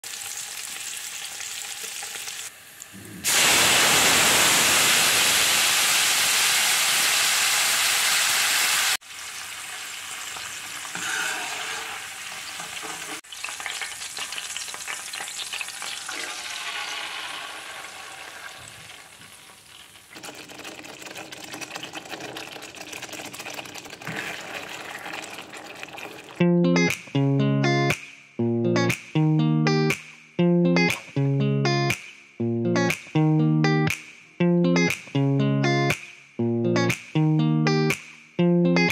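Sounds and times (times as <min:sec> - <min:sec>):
sizzling and crackling: 0:00.0 - 0:22.8
meat frying in oil: 0:00.0 - 0:26.4
wooden spoon stirring sauce: 0:20.2 - 0:26.3.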